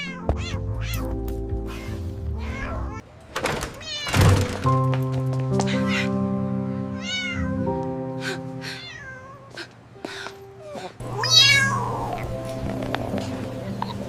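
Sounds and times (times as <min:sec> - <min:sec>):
cat meowing: 0:00.0 - 0:01.1, 0:01.7 - 0:03.0, 0:03.8 - 0:04.3, 0:05.6 - 0:06.2, 0:06.9 - 0:07.7, 0:08.6 - 0:09.7, 0:10.6 - 0:12.3
background music: 0:00.0 - 0:03.0, 0:04.1 - 0:09.0, 0:09.8 - 0:14.0.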